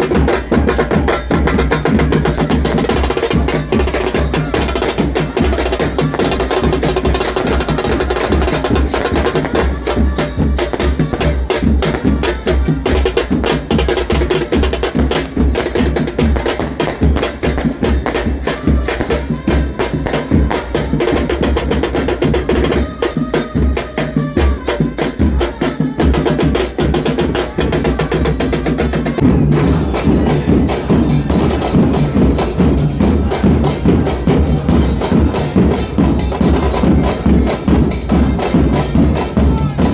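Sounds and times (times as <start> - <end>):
bass drums pounding: 29.2 - 39.9.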